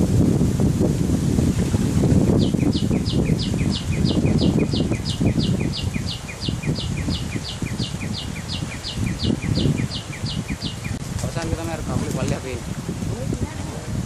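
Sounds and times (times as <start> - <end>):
bird chirping: 2.3 - 11.0.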